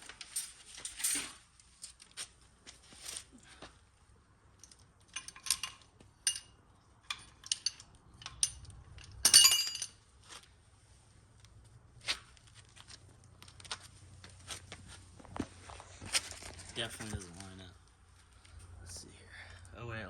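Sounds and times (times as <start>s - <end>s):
metal parts clinking: 4.6s - 10.0s.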